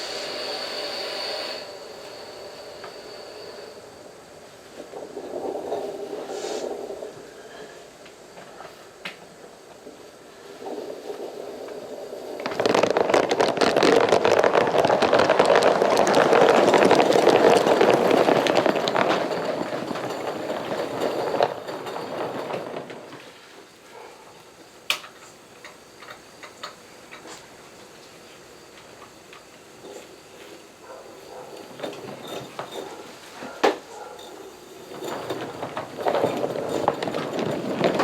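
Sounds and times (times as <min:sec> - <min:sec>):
steam locomotive exhaust: 0:00.0 - 0:12.5.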